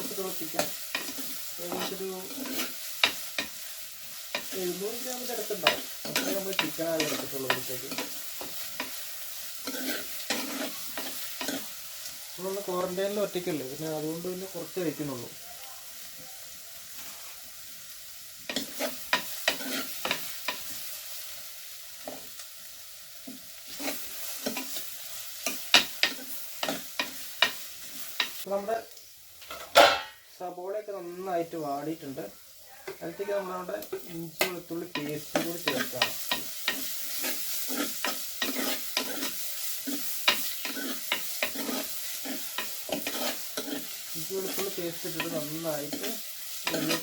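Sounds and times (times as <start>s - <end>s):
onions sizzling in oil: 0.0s - 47.0s
spoon scraping against pot: 0.6s - 3.6s, 9.6s - 11.8s, 18.5s - 20.7s, 23.3s - 28.4s, 33.9s - 47.0s.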